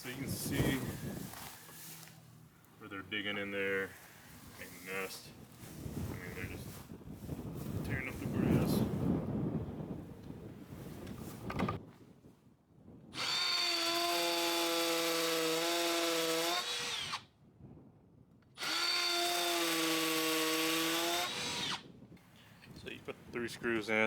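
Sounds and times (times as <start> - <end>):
cordless drill whining: 13.2 - 17.3, 18.6 - 21.8.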